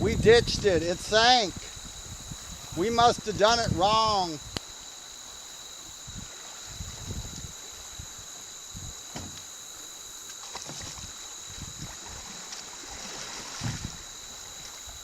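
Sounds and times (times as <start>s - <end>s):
insects droning: 0.0s - 15.0s
water sloshing: 4.6s - 15.0s.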